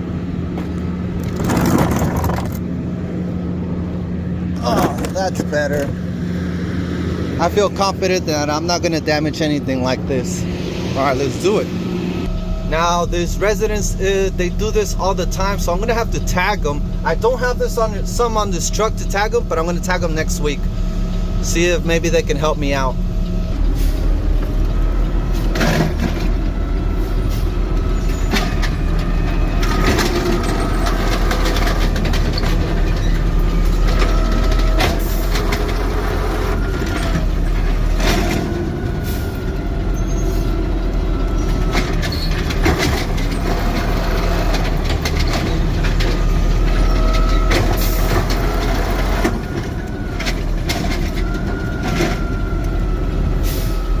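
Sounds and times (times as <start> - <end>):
diesel engine and hydraulics whining: 0.0 - 54.0
garbage cans clanking: 1.2 - 2.6.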